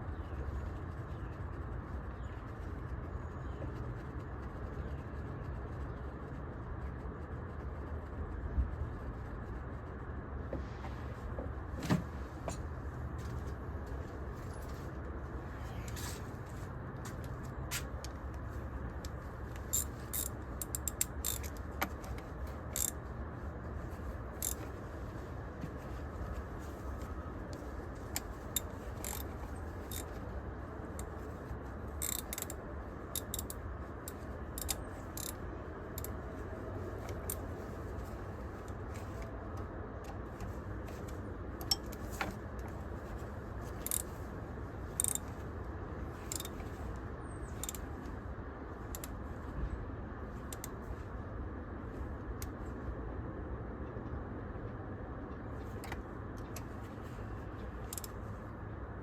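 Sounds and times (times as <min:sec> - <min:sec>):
metal tools clicking: 0:19.6 - 0:23.0, 0:24.4 - 0:24.7, 0:28.2 - 0:30.2, 0:32.0 - 0:35.4.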